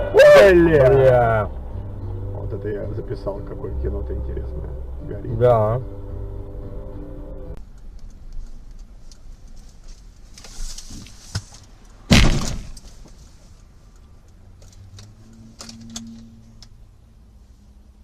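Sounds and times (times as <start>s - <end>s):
faint traffic rumble: 0.0s - 18.0s
vehicle crash: 12.0s - 13.2s.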